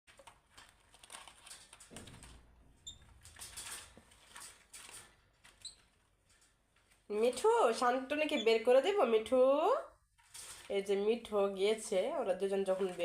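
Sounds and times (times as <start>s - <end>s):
birds scratching and rustling in cage: 0.5s - 7.6s, 10.2s - 10.7s.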